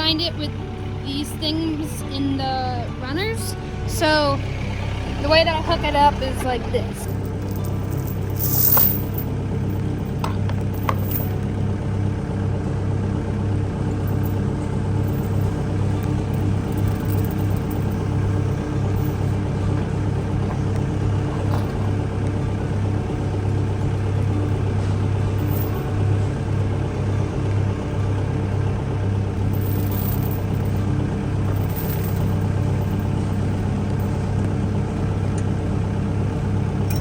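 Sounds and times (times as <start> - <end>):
tractor engine idling: 0.0 - 37.0
tow chain clicks: 7.0 - 11.5, 14.0 - 22.0, 25.4 - 25.9, 29.5 - 34.2.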